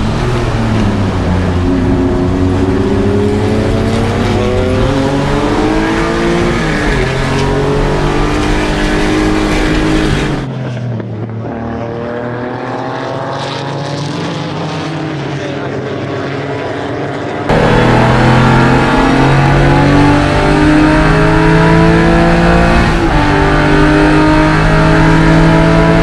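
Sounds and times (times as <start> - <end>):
duller engine note rising: 0.0 - 26.0
race car engine accelerating: 0.0 - 26.0.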